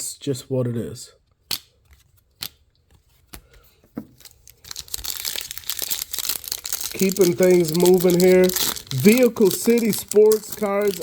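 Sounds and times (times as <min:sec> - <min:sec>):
card pack wrapper tearing and crinkling: 0:04.1 - 0:11.0.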